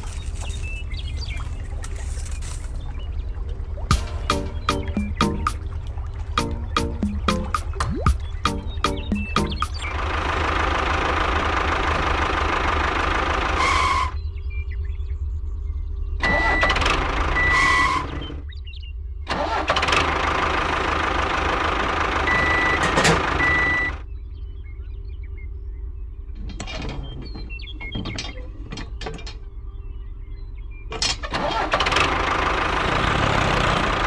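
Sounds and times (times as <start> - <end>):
engine throbbing: 3.9 - 14.2, 31.5 - 34.0
rushing mechanical noise: 3.9 - 14.3.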